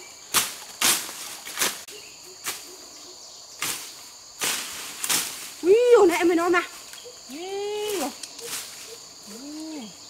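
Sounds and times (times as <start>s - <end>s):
high insect drone: 0.0s - 10.0s.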